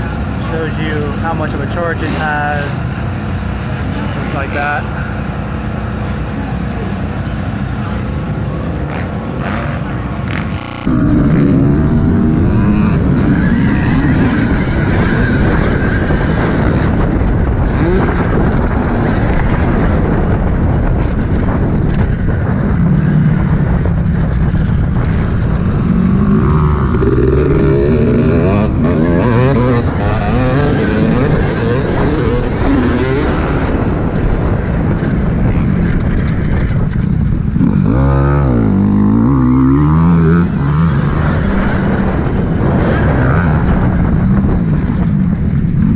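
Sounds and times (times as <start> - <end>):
dirt bike engines revving: 0.0 - 45.9
track noise: 0.0 - 45.9
wind rushing: 10.2 - 45.9.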